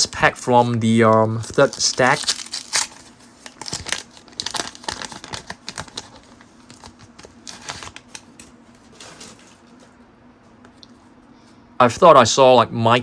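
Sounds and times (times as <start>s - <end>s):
paper wrapper crinkling: 0.0s - 9.9s.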